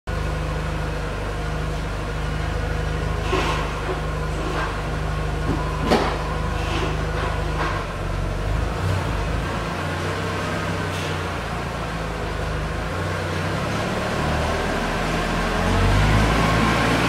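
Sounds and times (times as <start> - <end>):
car engine idling: 0.1 - 13.6.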